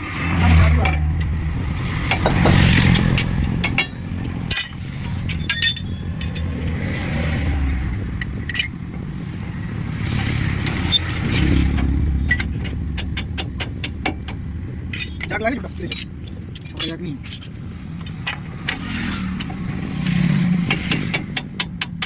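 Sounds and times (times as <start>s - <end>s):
vehicle engine rumble: 0.0s - 22.0s
metallic clinks and taps: 3.0s - 6.6s, 7.8s - 8.8s, 10.6s - 18.8s.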